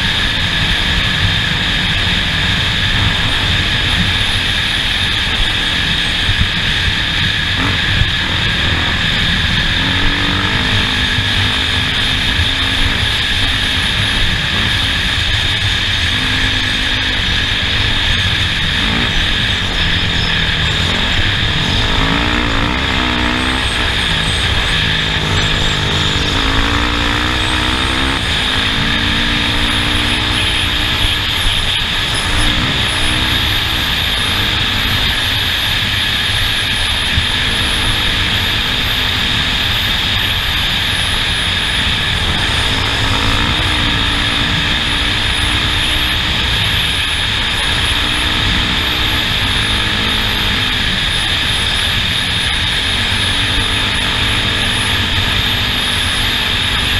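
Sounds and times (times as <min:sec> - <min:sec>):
race vehicle engine revving: 0:00.0 - 0:56.9
thin high whine: 0:00.0 - 0:56.9
vehicle moving over course: 0:00.0 - 0:56.9.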